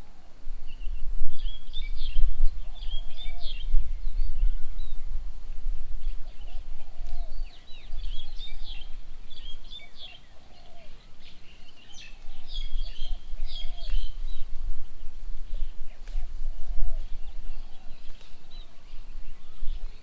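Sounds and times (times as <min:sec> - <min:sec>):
birds chirping: 0:06.0 - 0:20.0.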